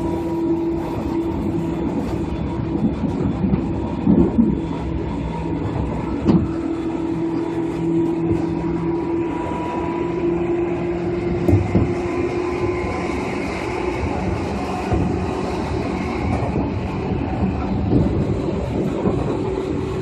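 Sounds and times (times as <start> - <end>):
electric train motor hum: 0.0 - 20.0.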